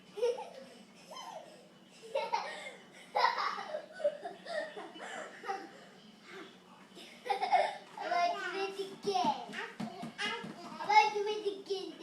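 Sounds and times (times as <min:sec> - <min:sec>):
young children laughing: 0:00.1 - 0:06.0, 0:07.0 - 0:08.3.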